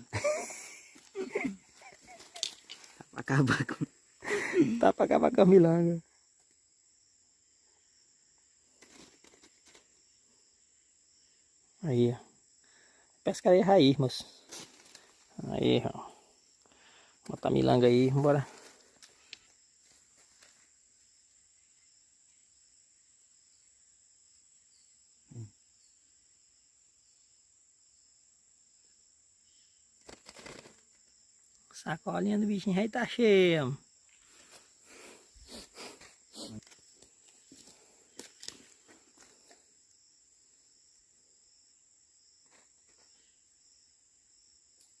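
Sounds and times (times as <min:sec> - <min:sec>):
high-pitched insect chirring: 0:00.1 - 0:07.1.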